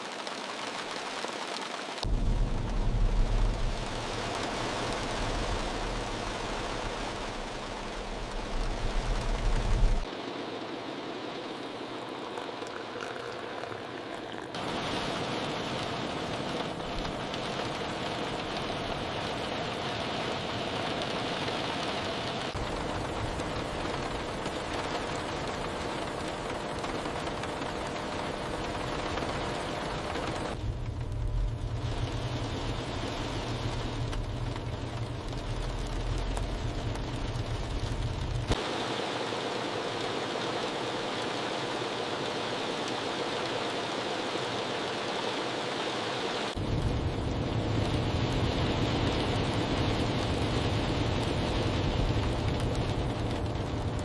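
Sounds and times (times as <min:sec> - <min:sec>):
heavy rain falling: 0:00.0 - 0:54.0
deep low rumble: 0:02.0 - 0:10.1, 0:30.6 - 0:38.6.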